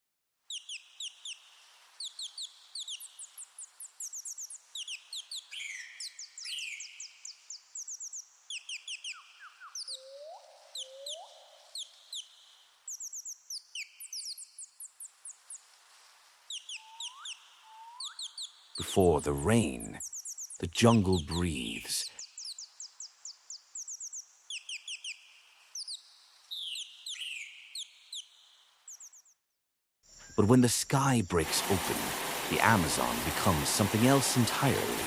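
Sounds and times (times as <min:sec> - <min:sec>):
faint steady hiss: 0:00.8 - 0:06.5, 0:14.0 - 0:27.0, 0:30.1 - 0:35.0
rising whistled bird calls: 0:04.0 - 0:12.3, 0:16.5 - 0:18.6, 0:23.5 - 0:28.3
birds chirping: 0:16.5 - 0:29.4, 0:30.1 - 0:35.0.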